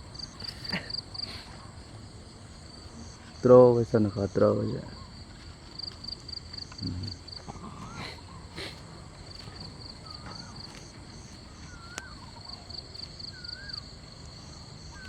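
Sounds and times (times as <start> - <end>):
crickets chirping: 0.0 - 15.0
wavering whistle-like animal calls: 7.6 - 8.8, 11.5 - 13.9.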